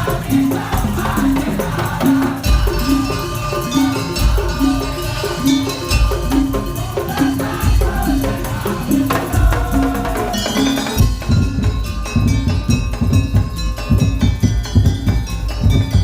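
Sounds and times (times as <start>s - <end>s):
deep drum beats: 0.0s - 16.0s
percussion ensemble playing: 0.0s - 16.0s.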